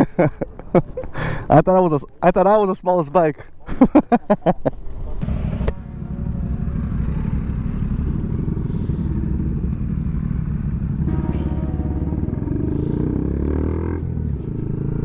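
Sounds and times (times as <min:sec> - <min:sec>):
motorcycle engine running: 0:05.2 - 0:15.0.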